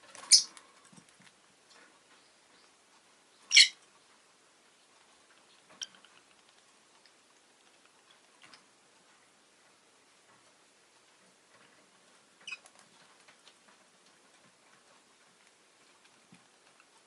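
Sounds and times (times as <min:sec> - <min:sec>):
lovebird chirping: 0:00.2 - 0:00.5, 0:02.2 - 0:03.8, 0:12.4 - 0:12.6.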